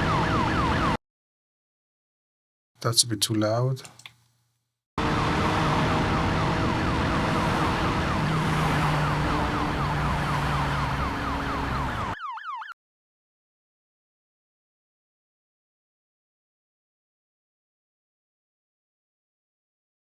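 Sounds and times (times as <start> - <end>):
police siren: 0.0 - 1.0, 5.0 - 12.8
road noise: 5.0 - 12.2.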